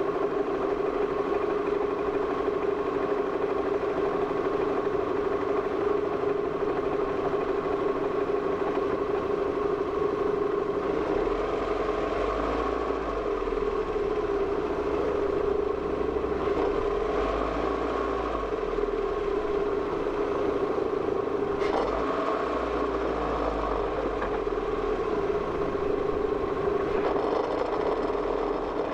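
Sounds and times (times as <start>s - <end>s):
vehicle engine drone: 0.0s - 28.9s
deep rumble: 13.2s - 17.4s, 18.7s - 22.0s, 24.6s - 27.8s.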